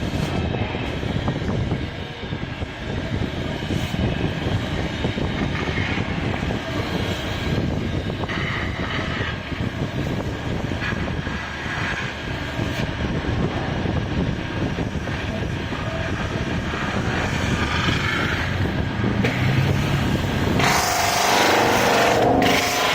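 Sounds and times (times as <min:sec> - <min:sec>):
metal spinning machine rumble: 0:00.0 - 0:22.9
tool scraping metal: 0:20.5 - 0:22.9.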